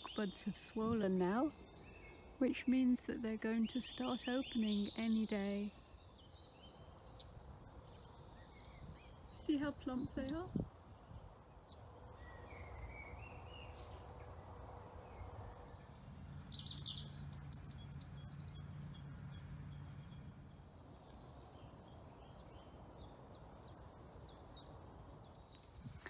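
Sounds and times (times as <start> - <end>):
birds calling and singing: 0.0 - 26.0.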